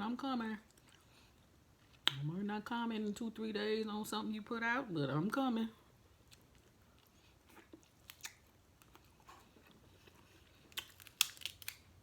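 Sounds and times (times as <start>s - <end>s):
person chewing food: 0.6s - 2.3s, 6.2s - 12.0s
mouth clicks and smacks: 2.0s - 2.3s.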